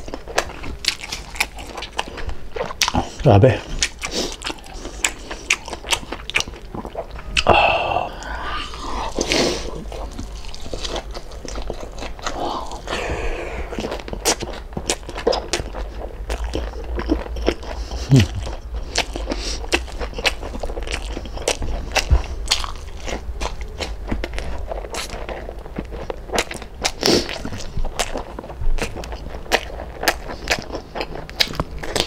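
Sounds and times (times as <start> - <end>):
crunchy chewing: 0.0 - 32.0
steady low hum: 0.0 - 32.0.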